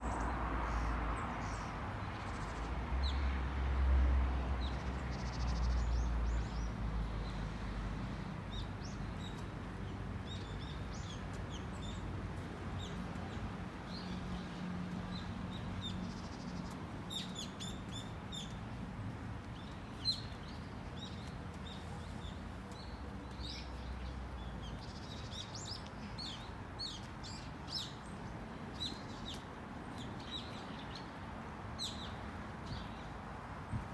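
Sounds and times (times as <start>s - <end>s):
small birds chirping: 19.4s - 31.2s.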